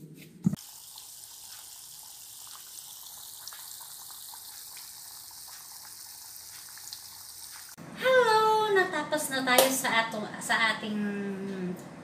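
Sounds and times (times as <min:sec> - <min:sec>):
oil sizzling in a pan: 0:00.6 - 0:07.8.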